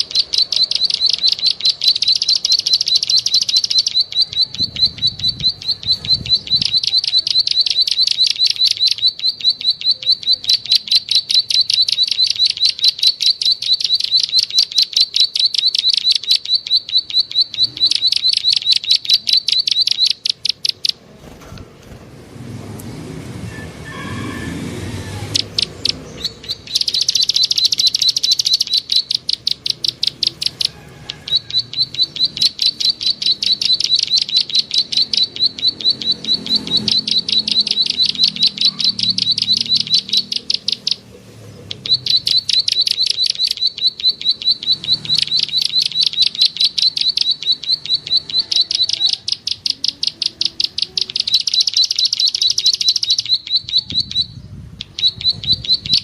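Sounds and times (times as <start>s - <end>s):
bird clicking chirps: 0.0s - 21.0s, 25.2s - 56.0s.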